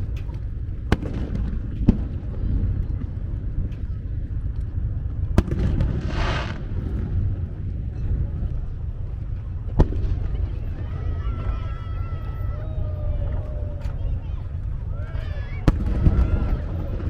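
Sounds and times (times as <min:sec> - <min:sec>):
steady low rumble: 0:00.0 - 0:17.0
fireworks bursting: 0:00.8 - 0:03.2, 0:05.3 - 0:07.9, 0:15.6 - 0:17.0.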